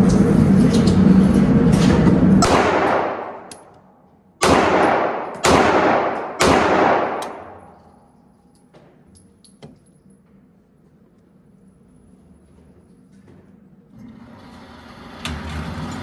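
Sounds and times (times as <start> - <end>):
gunshots echoing: 1.8 - 3.5, 4.4 - 7.8.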